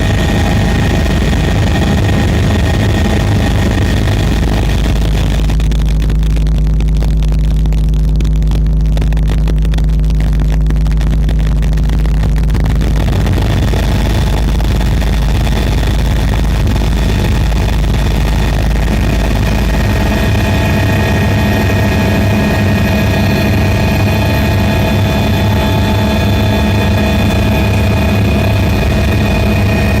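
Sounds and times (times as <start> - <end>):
drone propellers whining: 0.0 - 5.0, 16.8 - 30.0
deep rumble: 0.0 - 30.0.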